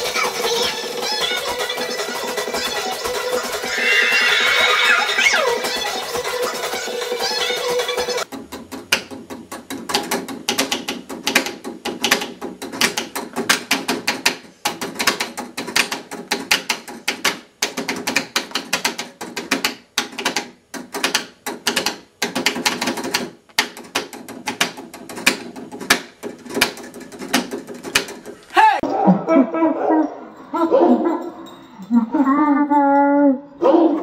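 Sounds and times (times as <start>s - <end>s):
mechanical clicking and clattering: 8.2s - 28.4s.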